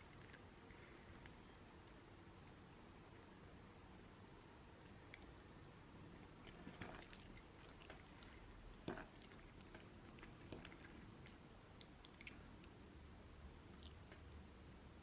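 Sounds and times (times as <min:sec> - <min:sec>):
quiet chewing: 0:00.0 - 0:02.1, 0:04.8 - 0:05.6, 0:06.2 - 0:12.8, 0:13.6 - 0:14.5.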